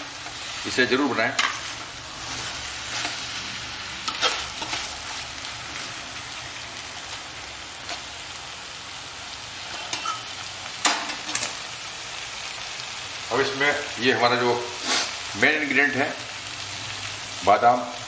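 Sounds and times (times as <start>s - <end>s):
food sizzling in a pan: 0.0s - 18.0s
spatula scraping a metal pan: 0.2s - 3.4s, 4.0s - 4.9s.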